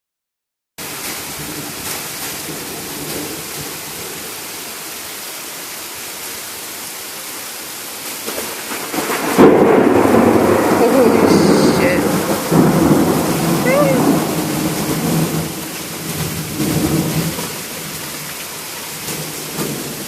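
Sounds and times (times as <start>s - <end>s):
heavy rain pouring: 0.8s - 20.0s
thunder rumble and crack: 8.2s - 18.0s, 18.9s - 20.0s.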